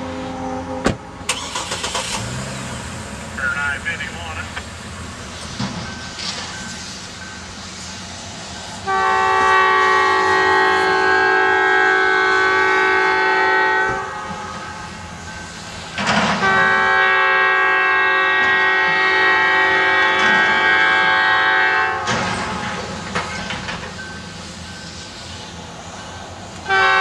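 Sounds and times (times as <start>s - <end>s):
locomotive air horn blasts: 0.0s - 0.9s, 8.8s - 14.6s, 16.4s - 22.2s, 26.6s - 27.0s.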